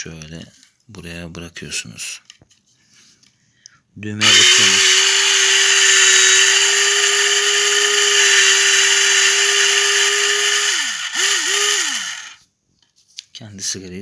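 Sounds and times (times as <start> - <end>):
rolling machine motor whirring: 4.2 - 12.4.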